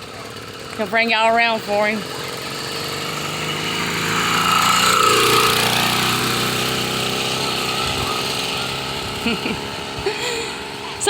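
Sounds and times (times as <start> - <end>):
two-stroke bicycle engine running: 0.0 - 11.0.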